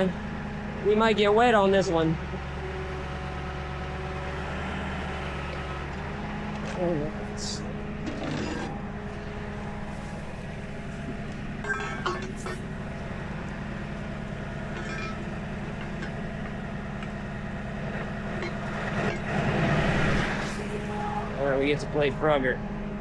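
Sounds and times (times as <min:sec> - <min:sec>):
truck engine idling: 0:00.0 - 0:23.0
metallic clinks: 0:11.6 - 0:17.2.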